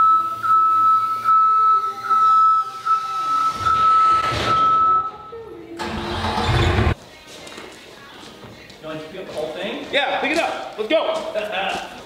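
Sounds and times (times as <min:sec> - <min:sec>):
high-pitched electronic tone: 0:00.0 - 0:05.3
music playing: 0:00.0 - 0:12.0.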